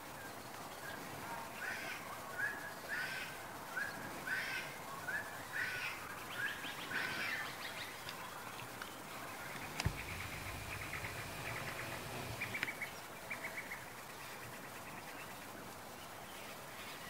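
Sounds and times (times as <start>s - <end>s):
bird calling: 9.5s - 13.0s.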